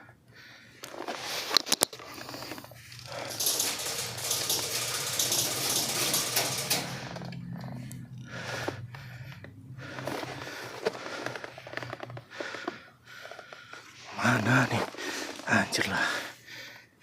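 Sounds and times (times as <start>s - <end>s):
scattered clicks: 0.8s - 14.0s.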